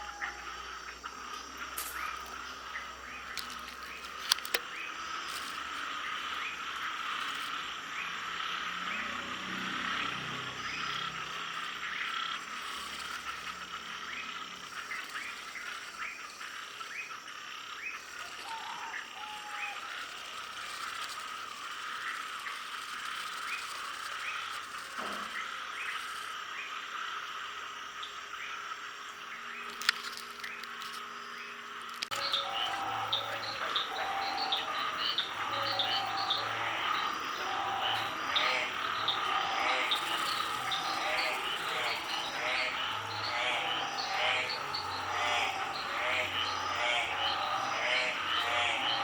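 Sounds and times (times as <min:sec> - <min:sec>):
frogs calling: 0:00.0 - 0:49.0
sharp clicks: 0:03.2 - 0:06.2, 0:29.6 - 0:31.1.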